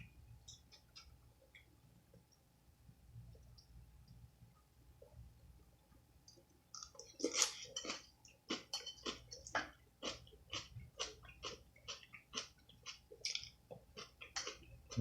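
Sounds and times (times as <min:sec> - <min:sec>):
person chewing food: 0:06.3 - 0:15.0.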